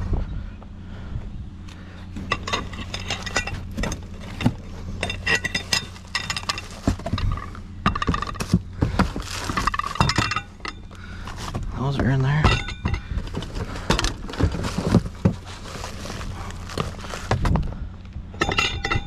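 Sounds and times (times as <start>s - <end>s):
steady low hum: 0.0s - 19.0s
metal and glass scrap clattering: 2.2s - 17.6s, 18.4s - 19.0s.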